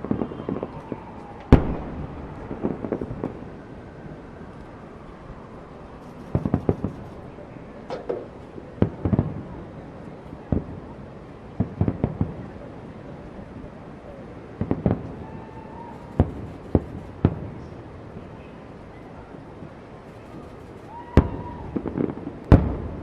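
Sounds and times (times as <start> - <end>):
fireworks bangs: 0.0 - 4.6, 6.0 - 7.3, 7.9 - 9.6, 14.6 - 18.6, 19.3 - 23.0.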